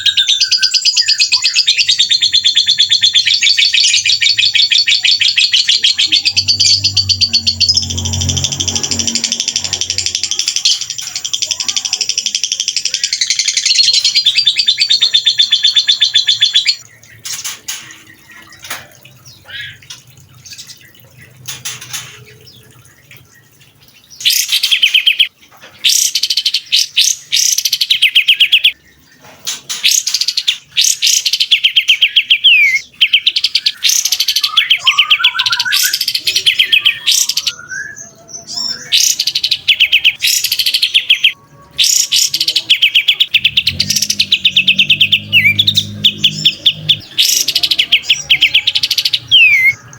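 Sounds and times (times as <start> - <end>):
bird chirps: 0.0 - 49.9
songbird rapid rattling trills: 1.3 - 37.6.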